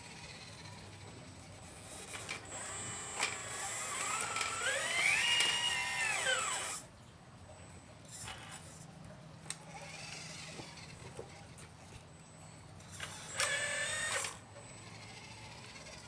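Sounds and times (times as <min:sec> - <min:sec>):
electric hydraulic pump whine: 0:00.0 - 0:06.9, 0:08.1 - 0:08.8, 0:12.8 - 0:16.0
high steady motor whistle: 0:01.8 - 0:06.8, 0:12.4 - 0:15.9.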